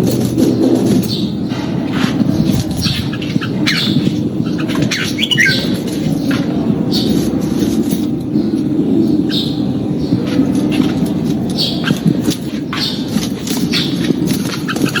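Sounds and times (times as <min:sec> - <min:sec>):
bird calling sharp notes: 0:02.8 - 0:05.9.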